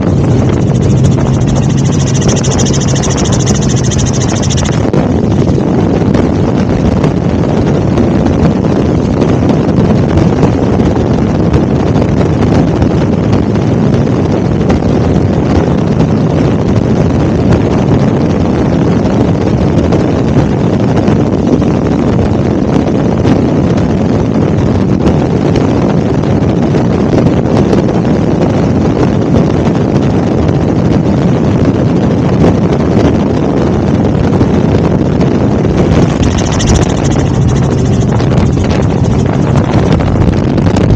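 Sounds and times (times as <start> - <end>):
helicopter rotor and engine: 0.0 - 13.2, 33.9 - 40.9.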